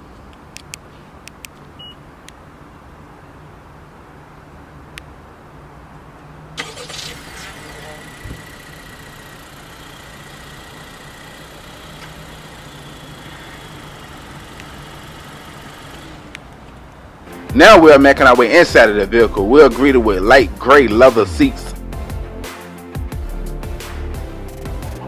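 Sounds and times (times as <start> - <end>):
car engine starting and idling: 6.2 - 22.2.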